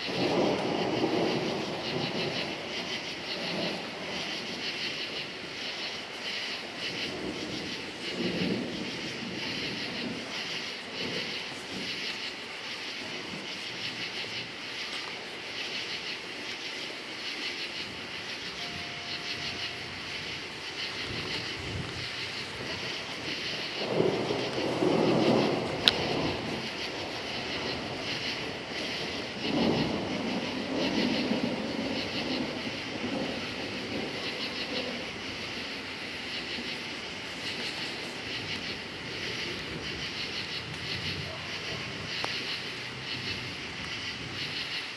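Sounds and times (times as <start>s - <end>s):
crickets chirping: 0.0s - 44.9s
distant thunder rumbling: 0.0s - 44.9s.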